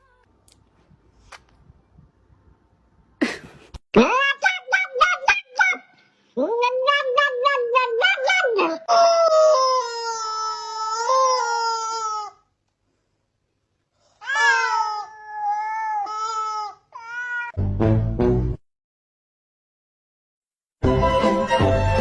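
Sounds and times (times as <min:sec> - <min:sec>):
cat yowling: 0:06.5 - 0:12.4, 0:14.2 - 0:17.6.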